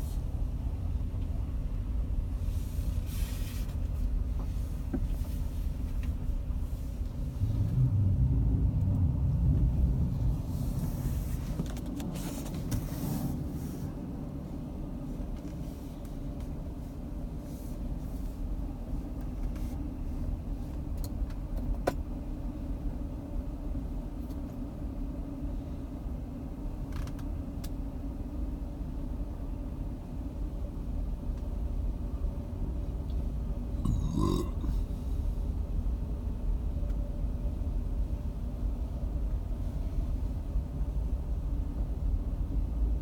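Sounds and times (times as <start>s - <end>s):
storm wind rumbling on microphone: 7.2s - 11.5s.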